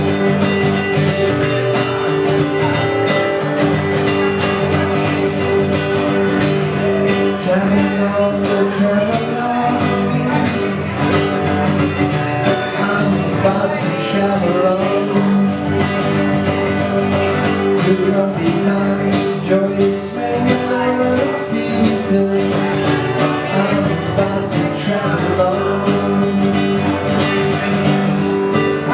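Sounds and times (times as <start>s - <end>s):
acoustic guitar folk music: 0.0s - 28.9s.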